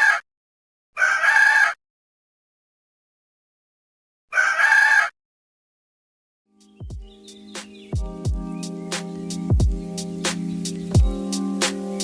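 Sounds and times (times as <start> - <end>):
rooster crowing: 1.0 - 1.8, 4.3 - 5.1.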